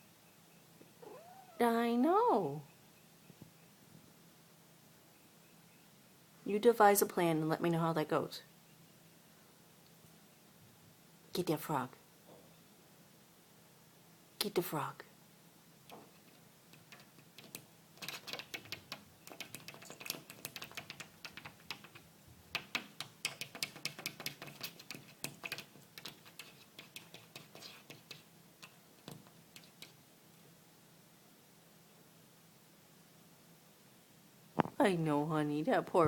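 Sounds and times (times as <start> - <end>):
cat claws tapping on glass: 16.8 - 30.0.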